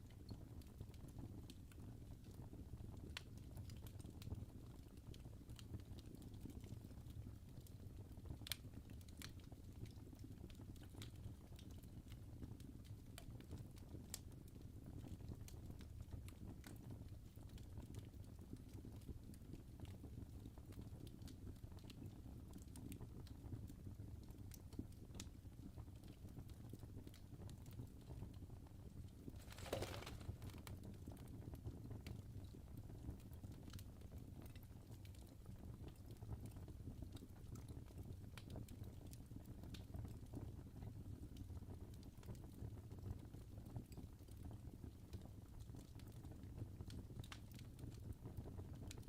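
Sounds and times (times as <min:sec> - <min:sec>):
fire crackling and popping: 0:00.1 - 0:49.0
fire crackling: 0:24.1 - 0:36.5.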